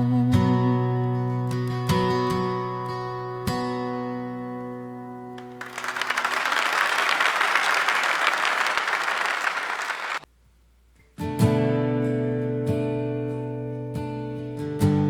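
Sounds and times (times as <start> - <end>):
audience applauding: 5.4 - 10.2.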